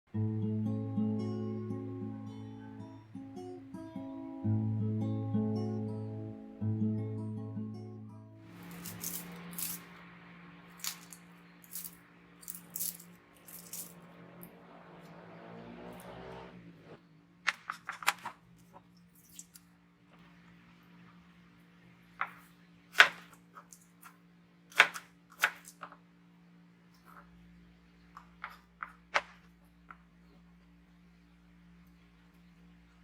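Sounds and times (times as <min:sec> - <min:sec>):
steady low hum: 0:04.6 - 0:17.4
utensils clicking and knocking: 0:08.6 - 0:09.9, 0:10.8 - 0:14.0.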